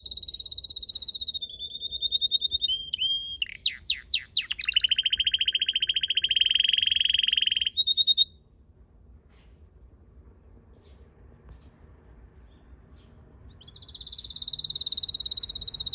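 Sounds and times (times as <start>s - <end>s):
canary singing trills: 0.0s - 8.4s, 13.0s - 15.9s.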